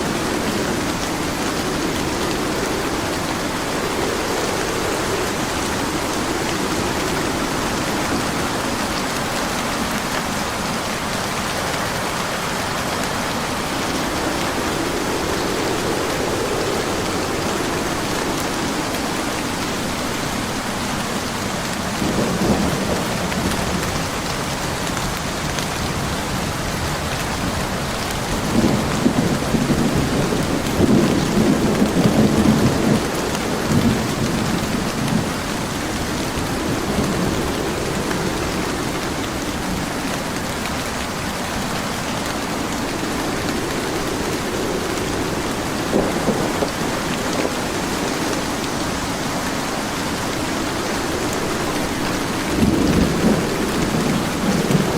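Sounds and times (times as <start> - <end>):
heavy rain falling: 0.0 - 54.9
thunder rumbling: 0.0 - 54.9.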